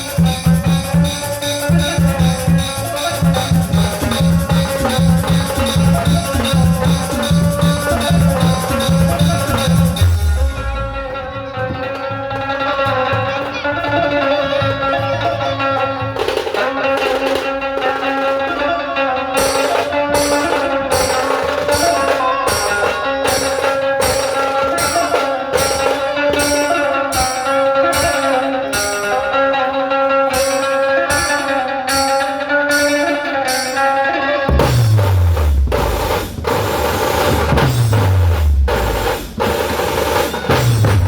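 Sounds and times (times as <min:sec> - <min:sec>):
band music with melody and bass: 0:00.0 - 0:12.4, 0:15.4 - 0:41.0
drums: 0:00.0 - 0:41.0
cymbal-like strikes: 0:34.5 - 0:41.0.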